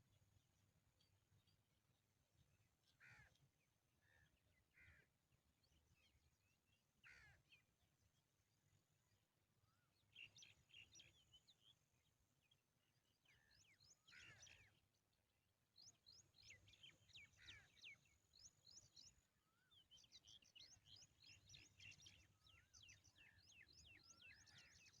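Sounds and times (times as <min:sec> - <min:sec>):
small birds chirping: 0:09.7 - 0:15.0, 0:15.8 - 0:25.0.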